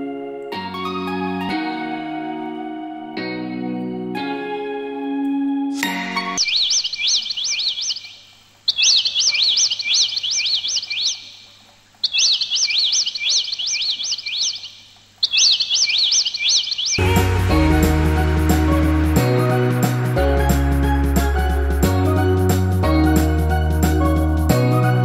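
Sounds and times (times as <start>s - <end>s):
music: 0.0s - 6.4s, 17.0s - 25.0s
songbird chirping: 0.0s - 25.0s.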